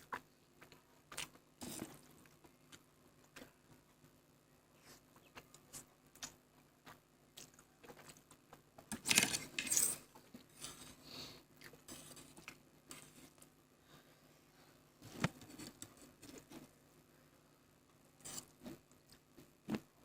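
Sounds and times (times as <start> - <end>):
soft chewing with clicks: 0.0 - 4.2, 4.8 - 8.9, 11.6 - 13.6, 18.4 - 19.8.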